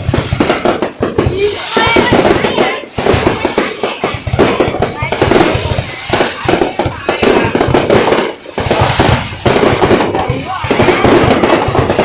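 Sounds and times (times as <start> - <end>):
fireworks cracks and bangs: 0.0 - 12.0
voices: 1.1 - 12.0.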